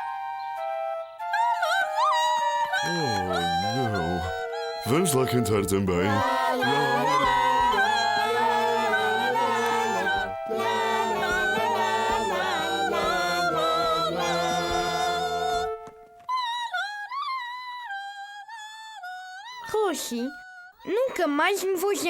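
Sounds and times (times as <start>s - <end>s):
high voice singing alone: 1.6s - 15.9s
group of voices singing: 2.7s - 16.0s.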